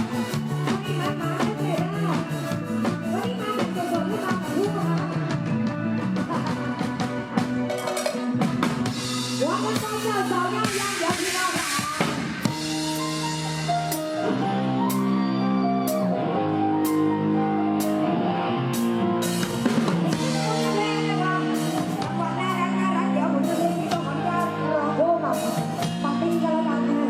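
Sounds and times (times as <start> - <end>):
drum kit steady beat: 0.0 - 15.2, 18.8 - 27.0
live band music: 0.0 - 27.0
held chords: 12.4 - 27.0.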